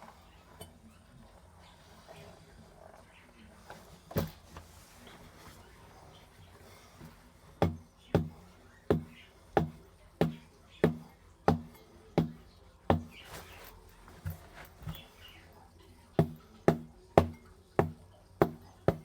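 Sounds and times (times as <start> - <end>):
sharp knocks: 7.6 - 13.2, 16.2 - 19.0.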